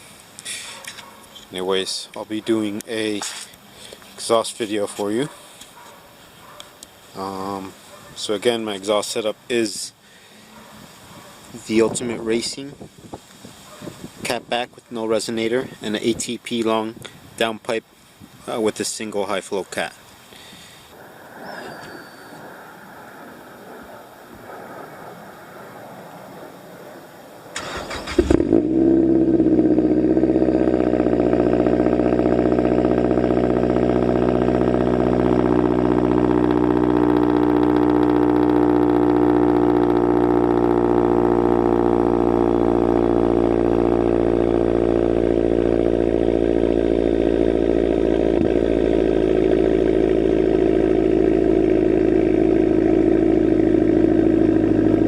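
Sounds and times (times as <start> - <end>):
car engine cold idle: 27.5 - 55.0
engine cranking: 27.6 - 28.6.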